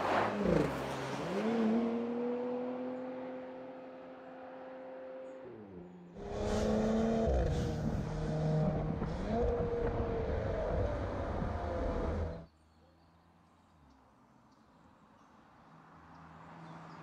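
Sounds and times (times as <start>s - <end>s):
car engine accelerating: 0.0s - 12.4s.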